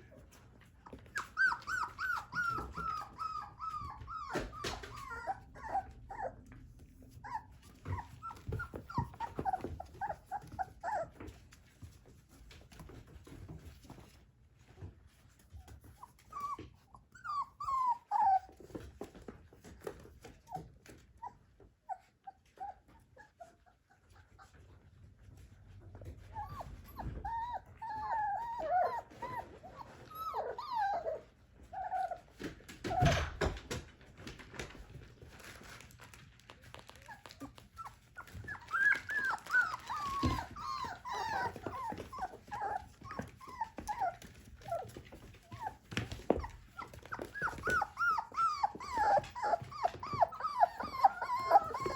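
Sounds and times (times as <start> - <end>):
puppies whimpering: 0.9 - 6.5, 7.1 - 11.4, 16.0 - 19.0, 26.1 - 33.3, 37.2 - 51.9.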